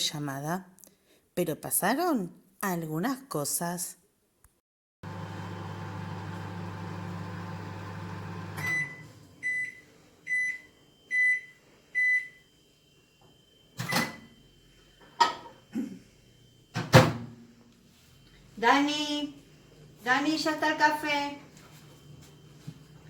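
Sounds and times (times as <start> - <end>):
microwave oven humming: 5.0 - 23.0.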